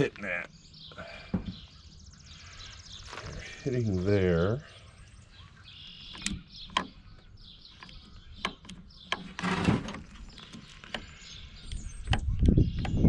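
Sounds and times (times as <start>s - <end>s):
faint bird chirps: 0.0s - 9.4s
scraping rustle: 9.1s - 11.0s.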